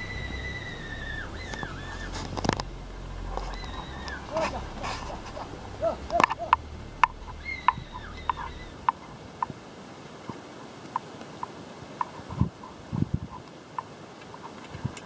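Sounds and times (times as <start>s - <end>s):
low wind or handling rumble: 0.0s - 10.1s.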